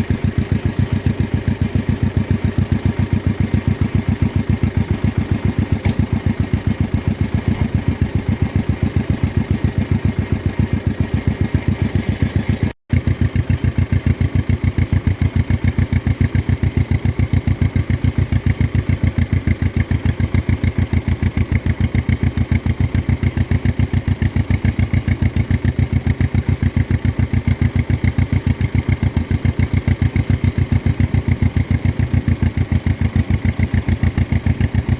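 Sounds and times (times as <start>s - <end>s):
tractor engine putting: 0.0s - 25.6s.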